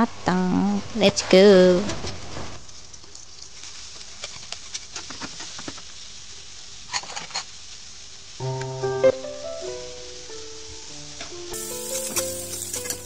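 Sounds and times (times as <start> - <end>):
squid sizzling in a wok: 1.4 - 13.0
oil popping and crackling: 2.6 - 7.7
light music: 8.4 - 13.0.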